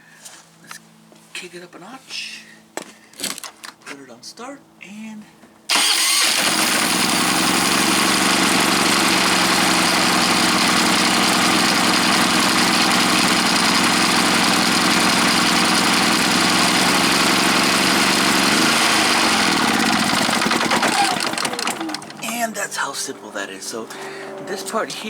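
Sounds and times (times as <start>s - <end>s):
generator engine running: 5.7s - 25.0s.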